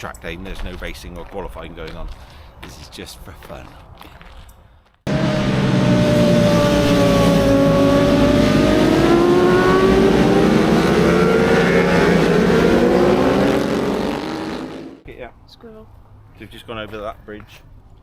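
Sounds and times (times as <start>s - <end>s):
racing motorcycles high revs: 5.1s - 15.0s.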